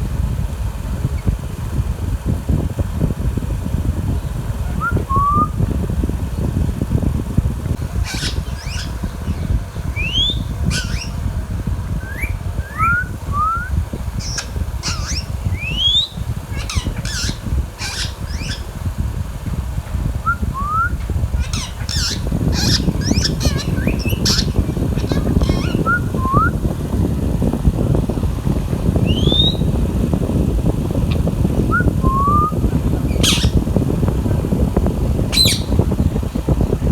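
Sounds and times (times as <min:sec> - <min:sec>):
steady low rumble: 0:00.0 - 0:36.9
parrot whistles and squawks: 0:08.0 - 0:11.1, 0:12.0 - 0:18.6, 0:20.3 - 0:26.6, 0:31.7 - 0:33.6, 0:35.3 - 0:35.7.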